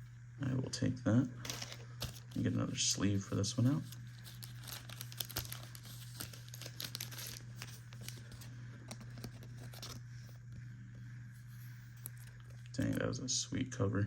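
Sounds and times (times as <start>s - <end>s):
plastic sleeve crinkling: 1.4s - 10.1s, 11.7s - 13.0s.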